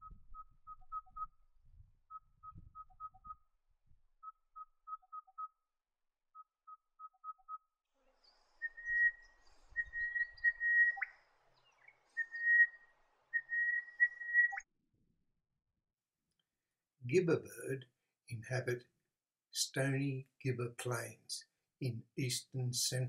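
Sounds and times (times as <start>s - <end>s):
drawn-out whistled notes: 8.2s - 14.6s
bird calling quick notes: 8.6s - 11.2s, 12.2s - 14.6s.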